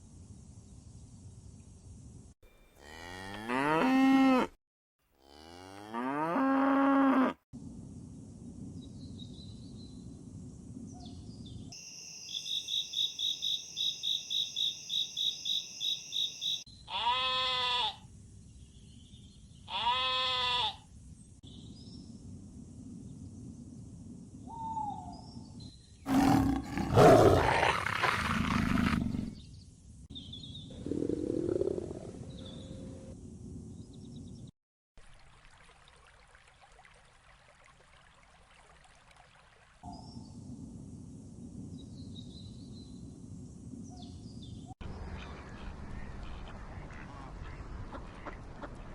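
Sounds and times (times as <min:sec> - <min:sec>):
loud rough animal roar: 0:26.1 - 0:29.4, 0:30.8 - 0:32.3.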